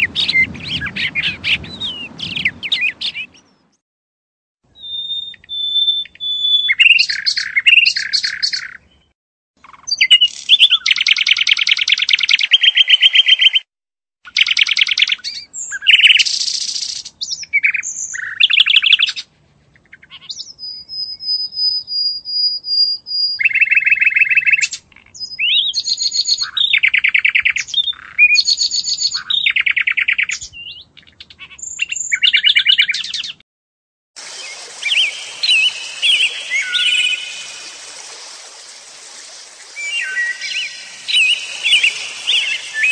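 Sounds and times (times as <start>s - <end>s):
small bird chirping trills: 34.3s - 42.9s
thin high whistle: 34.4s - 42.9s.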